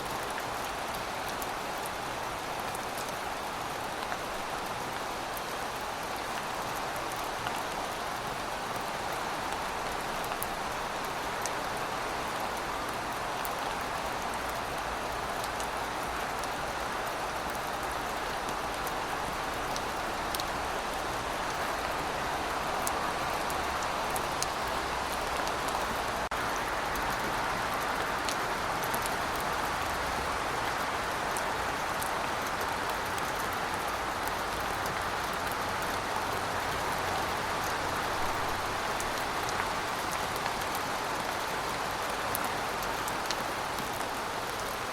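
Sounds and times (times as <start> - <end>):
steady rainfall hiss: 0.0 - 44.9.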